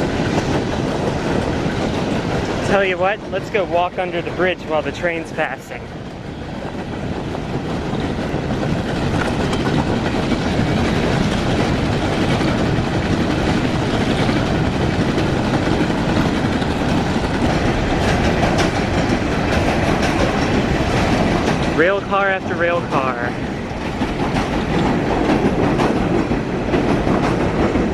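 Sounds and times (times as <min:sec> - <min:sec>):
freight train rumbling and rattling: 0:00.0 - 0:27.9.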